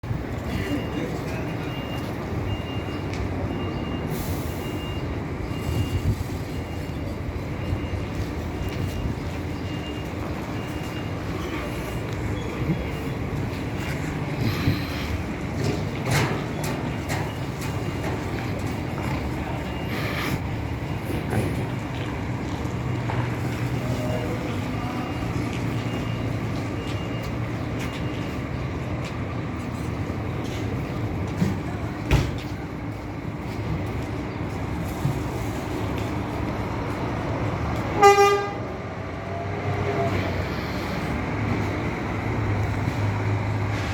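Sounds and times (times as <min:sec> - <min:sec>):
coach engine rumbling: 0:00.0 - 0:43.9
reversing beeper: 0:00.1 - 0:28.9.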